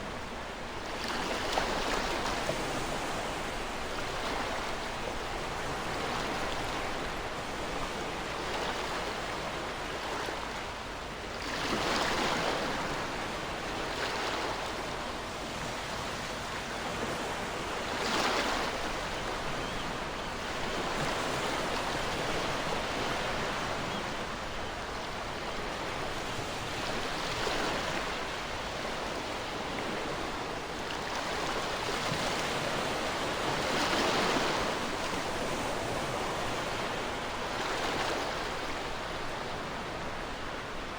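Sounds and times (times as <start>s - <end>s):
ocean waves breaking on shore: 11.4s - 40.9s.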